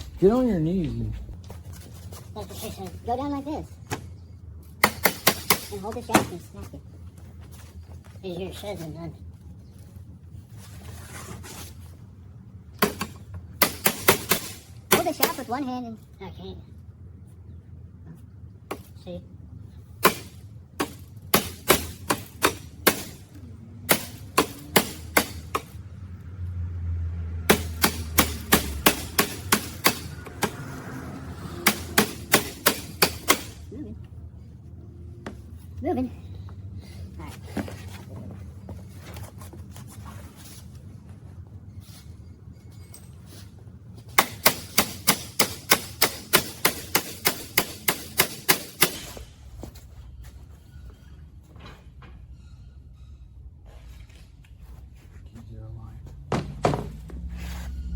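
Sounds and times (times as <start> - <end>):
low hum: 0.0 - 2.3
hammer striking metal: 27.5 - 30.7, 31.6 - 33.6.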